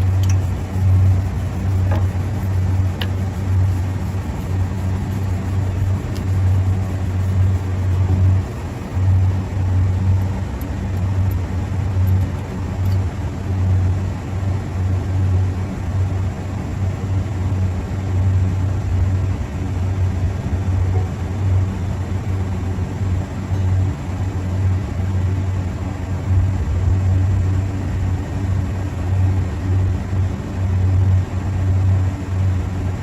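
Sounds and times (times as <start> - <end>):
machine humming: 0.0 - 17.6.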